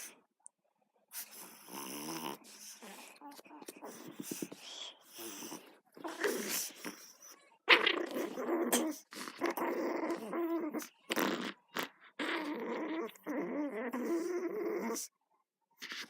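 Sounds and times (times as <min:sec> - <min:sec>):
dog growling in play: 0:01.2 - 0:04.5, 0:05.1 - 0:15.1.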